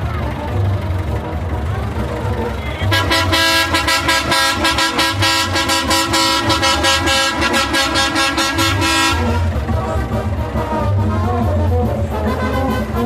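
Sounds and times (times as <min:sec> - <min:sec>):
low engine rumble: 0:00.0 - 0:13.0
vehicle horn short toots: 0:02.6 - 0:09.7, 0:12.2 - 0:13.0.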